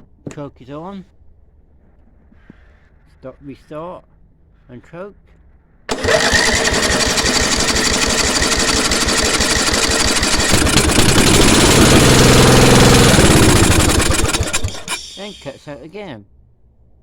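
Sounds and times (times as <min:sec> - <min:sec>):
small petrol engine running: 0:05.9 - 0:15.4.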